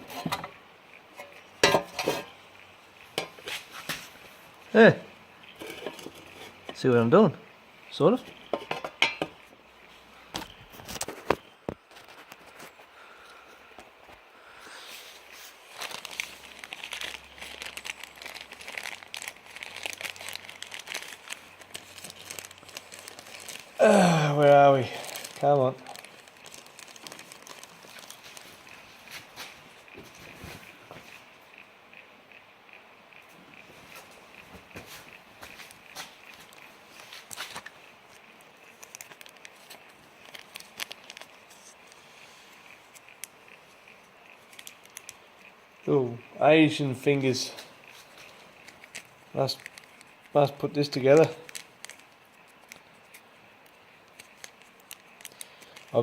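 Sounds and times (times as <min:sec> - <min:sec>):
plastic bag crinkling: 0:15.0 - 0:31.2, 0:33.9 - 0:45.5, 0:46.7 - 0:56.0
small engine parts clicking: 0:15.7 - 0:23.8, 0:36.4 - 0:45.9, 0:47.8 - 0:56.0.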